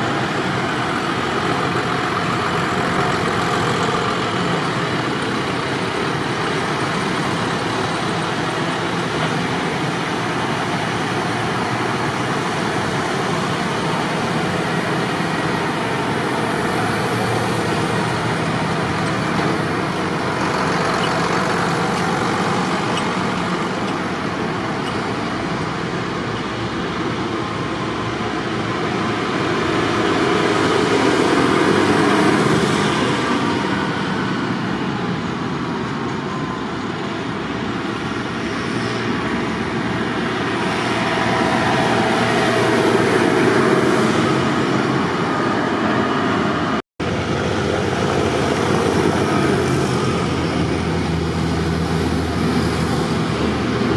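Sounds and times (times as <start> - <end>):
tractor engines running: 0.0 - 53.9.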